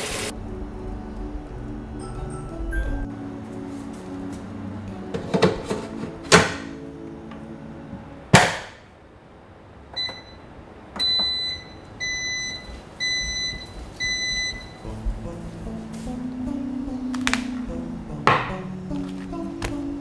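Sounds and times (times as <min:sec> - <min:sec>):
electronic appliance beeps: 0:10.0 - 0:10.4, 0:11.0 - 0:14.8.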